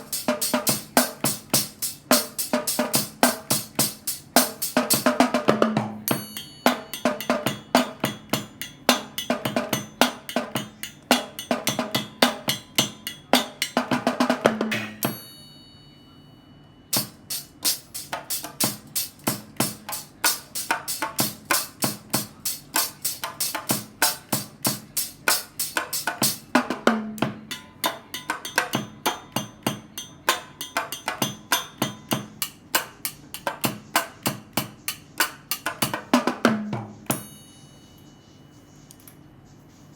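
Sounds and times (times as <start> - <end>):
tin can drums beating: 0.0 - 15.3, 16.9 - 37.4
cymbal ringing: 6.0 - 26.6, 27.2 - 33.4, 37.1 - 38.4.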